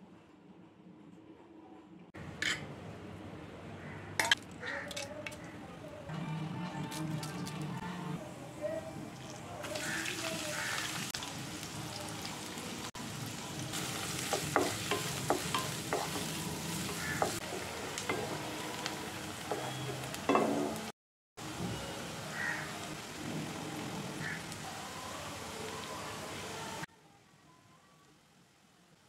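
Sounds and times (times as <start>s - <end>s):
onions sizzling in oil: 9.2s - 26.9s.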